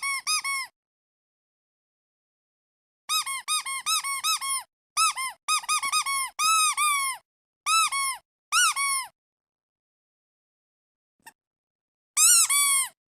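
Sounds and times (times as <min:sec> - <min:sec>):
squeaky duck toy squeaking: 0:00.0 - 0:00.7, 0:03.1 - 0:09.2, 0:12.2 - 0:13.0.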